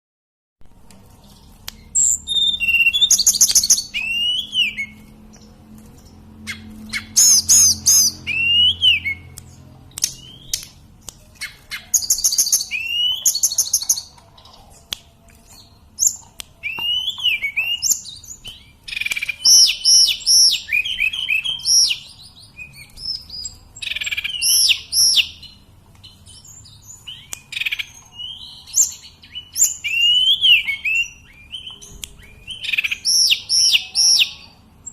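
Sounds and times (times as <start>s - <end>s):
bird singing whistling phrases: 2.0s - 5.0s, 6.5s - 9.3s, 11.4s - 13.7s, 27.0s - 34.5s.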